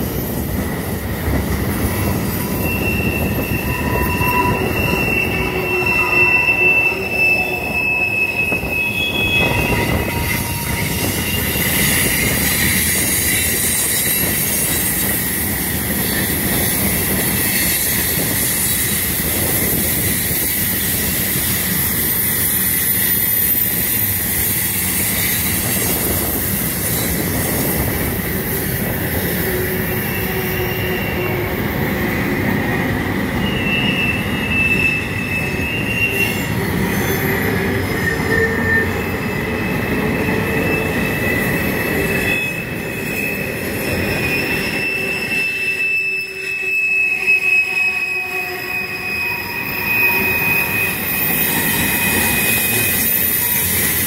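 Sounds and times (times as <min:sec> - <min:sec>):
steel wheels rumbling on rail: 0:00.0 - 0:54.0
wheel squeals: 0:01.7 - 0:54.0.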